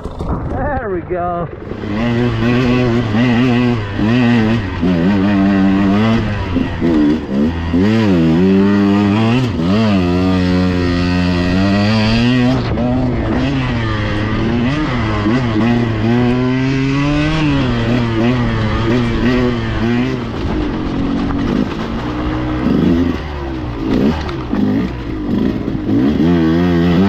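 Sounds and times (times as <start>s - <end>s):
dirt bike engine revving: 1.4s - 27.0s.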